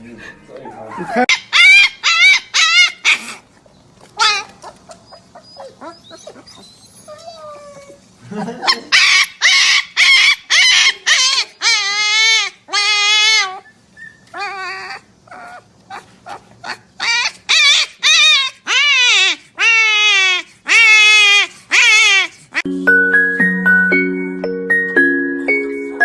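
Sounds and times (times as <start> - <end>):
animal wavering cries: 0.7 - 3.4, 8.9 - 22.7.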